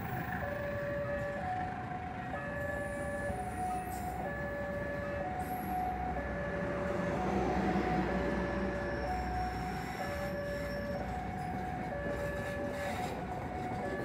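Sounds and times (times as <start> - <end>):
train rumbling past: 5.2 - 14.0.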